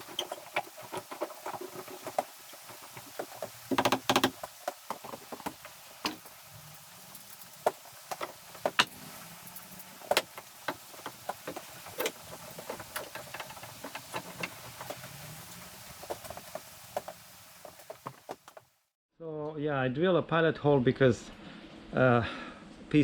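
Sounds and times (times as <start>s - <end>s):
wooden trim pieces clicking: 0.0s - 6.3s.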